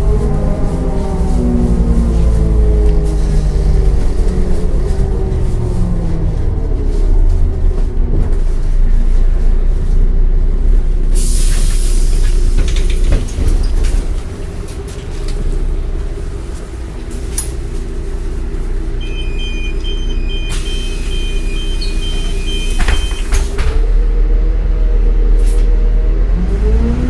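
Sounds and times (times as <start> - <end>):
bus diesel engine: 0.0 - 27.0
brake air hiss: 11.1 - 12.6
high electronic beeping: 19.0 - 23.4.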